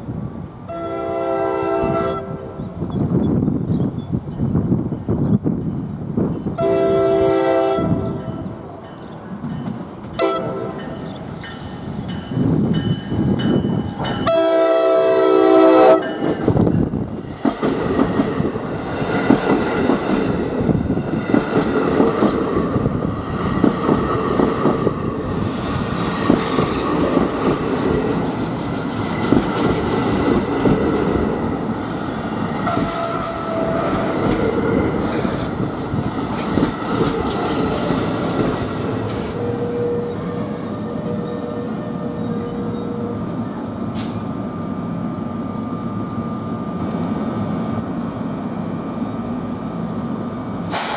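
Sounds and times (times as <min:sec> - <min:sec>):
train horn: 0:00.7 - 0:02.8, 0:06.5 - 0:08.8, 0:10.2 - 0:11.2, 0:13.9 - 0:16.4, 0:32.6 - 0:35.5, 0:38.7 - 0:44.2
train wheels clattering on rails: 0:08.8 - 0:14.5, 0:16.0 - 0:39.8, 0:50.5 - 0:50.9
wheel squeal and hiss: 0:32.0 - 0:34.2, 0:37.7 - 0:40.9, 0:43.8 - 0:44.3, 0:50.7 - 0:50.9.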